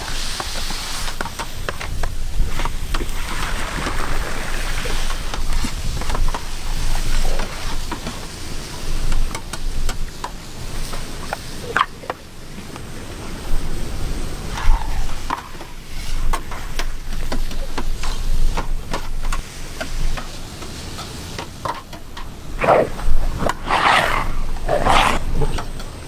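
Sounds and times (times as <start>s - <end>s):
food sizzling: 14.5s - 25.8s.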